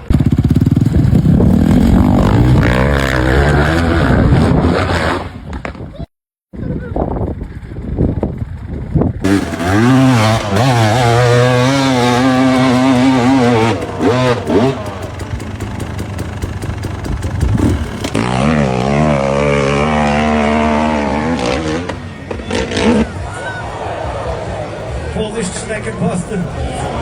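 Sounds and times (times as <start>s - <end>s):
motorcycle engine revving: 0.0s - 5.7s, 7.2s - 27.0s.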